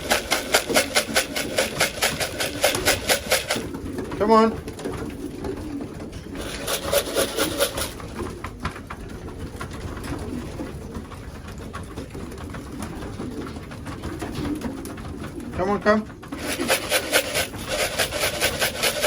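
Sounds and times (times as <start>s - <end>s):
rustling: 0.0s - 3.8s, 6.2s - 8.3s, 16.4s - 19.0s
pigeons cooing: 0.0s - 19.0s.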